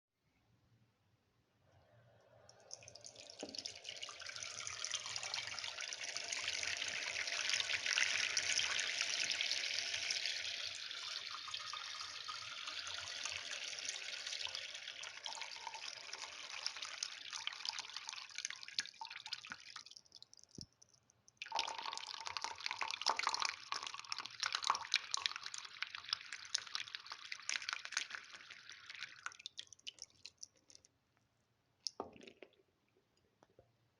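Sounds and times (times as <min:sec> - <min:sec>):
water running from faucet: 0:02.7 - 0:19.5.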